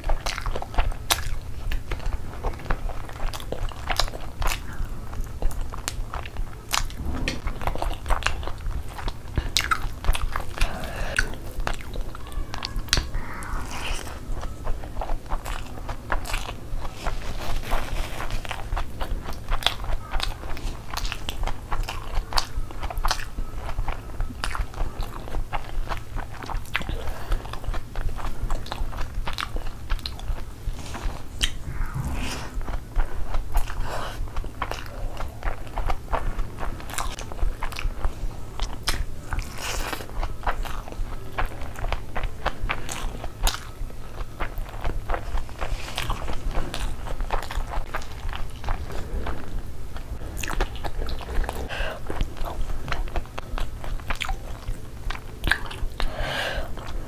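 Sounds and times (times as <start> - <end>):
chewing and biting food: 0.0 - 57.0
mouth clicks: 3.2 - 16.9.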